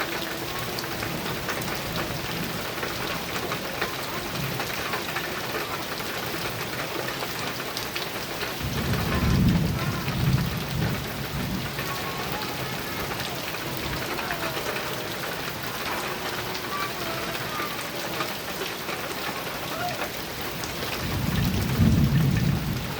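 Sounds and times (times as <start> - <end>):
heavy rain on a metal roof: 0.0 - 22.9
thunder rumbling: 8.6 - 17.6, 20.2 - 22.9.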